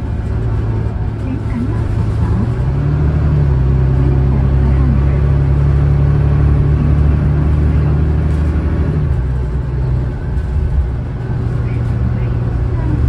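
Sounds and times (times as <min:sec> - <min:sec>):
bus diesel engine droning: 0:00.0 - 0:13.0.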